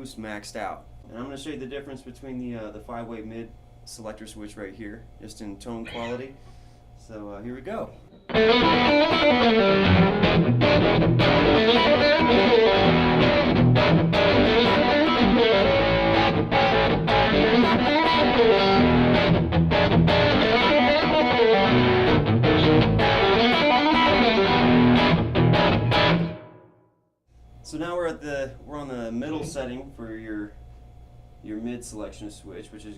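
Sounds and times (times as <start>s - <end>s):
distorted electric guitar blues lead: 8.3s - 26.5s.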